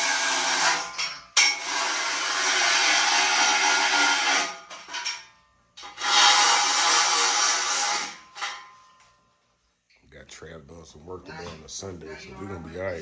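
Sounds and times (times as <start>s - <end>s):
power tool running: 0.0s - 4.6s, 5.9s - 8.2s.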